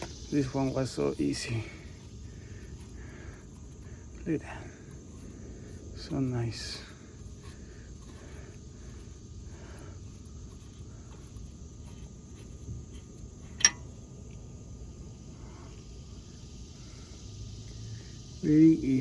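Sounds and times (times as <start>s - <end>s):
faint high continuous tone: 0.0s - 19.0s
low background hiss: 0.0s - 19.0s
sharp metallic click: 13.6s - 13.9s.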